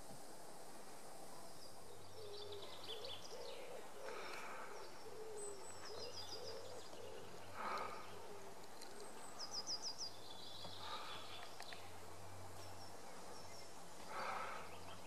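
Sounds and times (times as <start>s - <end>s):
songbirds singing: 1.0s - 15.0s
bird cooing low hoots: 2.2s - 8.6s.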